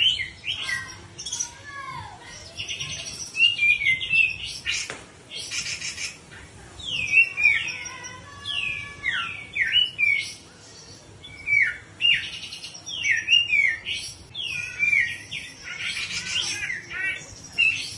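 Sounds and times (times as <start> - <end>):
harsh raspy bird call: 0.0 - 10.4, 11.4 - 17.9
bird whistling: 6.8 - 10.4, 11.2 - 17.9.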